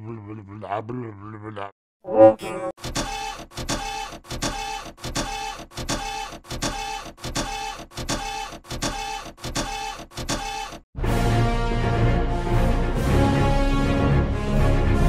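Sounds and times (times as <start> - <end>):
rhythmic mechanical chugging: 2.8 - 10.8.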